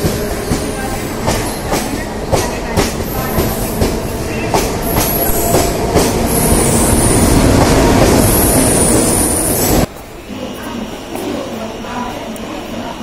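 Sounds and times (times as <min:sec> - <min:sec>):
train rumbling past: 0:00.0 - 0:13.0.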